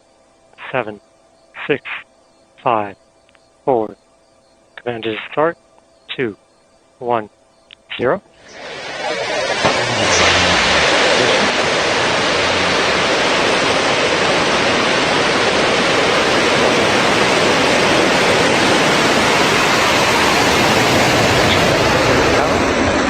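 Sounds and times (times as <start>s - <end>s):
rocket engine roaring: 7.9s - 23.0s.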